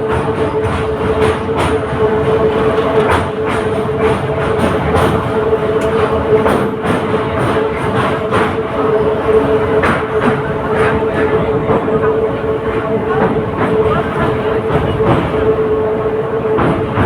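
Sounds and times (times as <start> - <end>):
electric train running: 0.0 - 17.0
wheels clacking on rail joints: 0.0 - 17.0.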